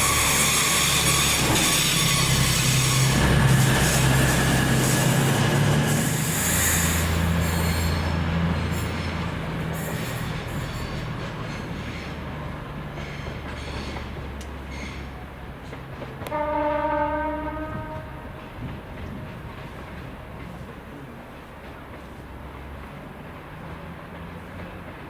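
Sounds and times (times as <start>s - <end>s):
high wheel squeal: 0.0s - 12.4s, 13.0s - 15.3s
train wheels rumbling: 0.0s - 25.0s.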